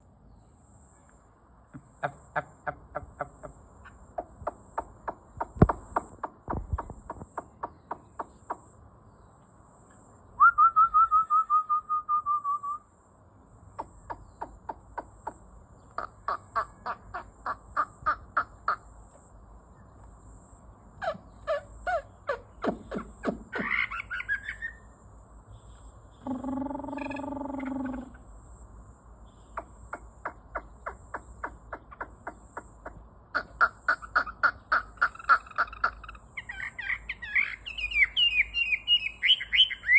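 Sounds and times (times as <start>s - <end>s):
songbird calling: 0.0s - 12.9s, 13.6s - 20.2s, 20.8s - 39.9s
bird trill: 21.0s - 25.0s, 25.6s - 28.4s, 29.3s - 39.9s.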